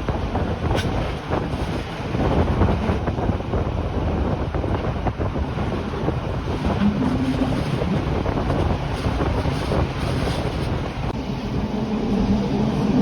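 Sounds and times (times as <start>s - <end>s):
train rumbling along track: 0.0s - 13.0s.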